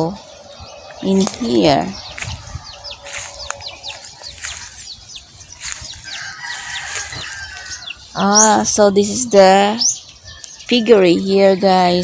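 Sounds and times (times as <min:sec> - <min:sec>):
chicks peeping: 0:00.0 - 0:12.0
faint drawn-out chicken call: 0:02.1 - 0:04.9, 0:05.6 - 0:08.0.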